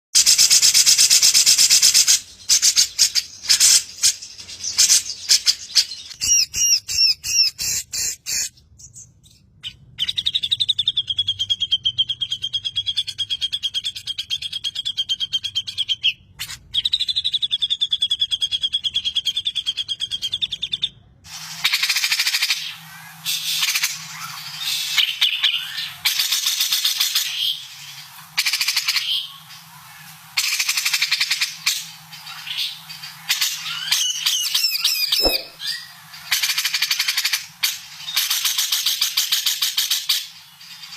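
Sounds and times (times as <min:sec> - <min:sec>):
sharp bird chirps: 0:00.2 - 0:20.9, 0:21.6 - 0:37.4
bird singing chattering phrases: 0:01.0 - 0:21.0, 0:21.6 - 0:40.0
bird rolling trills: 0:35.0 - 0:35.9.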